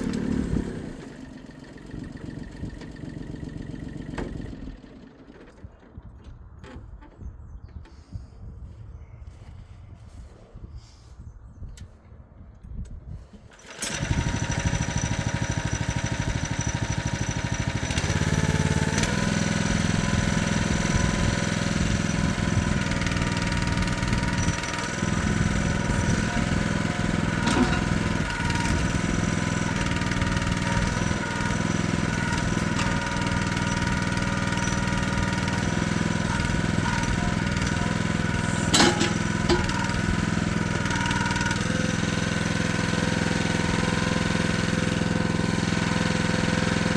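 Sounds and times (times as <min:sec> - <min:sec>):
small excavator engine running: 0:00.0 - 0:08.2, 0:13.3 - 0:46.9
short metallic knocks: 0:27.3 - 0:29.0, 0:38.4 - 0:40.1.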